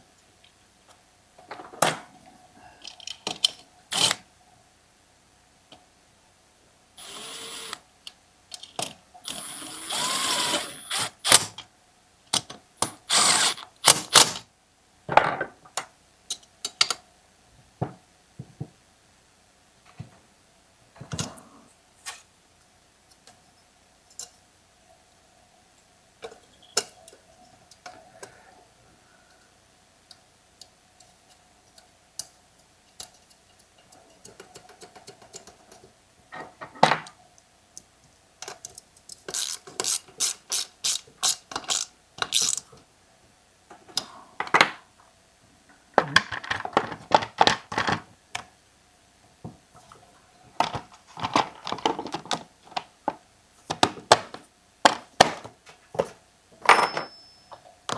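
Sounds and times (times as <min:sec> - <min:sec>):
metal parts clicking and knocking: 0:38.4 - 0:42.7
ratchet strokes: 0:39.3 - 0:42.6.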